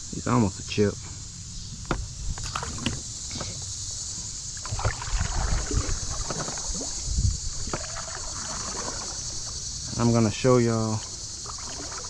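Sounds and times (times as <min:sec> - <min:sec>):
insects chirring: 0:00.0 - 0:12.0
knocks and bumps in a kayak: 0:01.8 - 0:03.6, 0:04.6 - 0:10.1.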